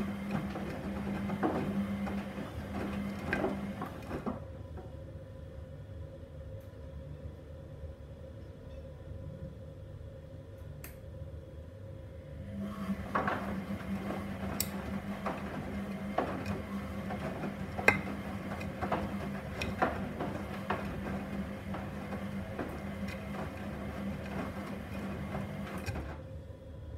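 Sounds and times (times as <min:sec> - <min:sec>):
washing machine motor humming: 0:00.0 - 0:05.0, 0:12.2 - 0:26.9
clinks and knocks of tumbling load: 0:13.0 - 0:26.1.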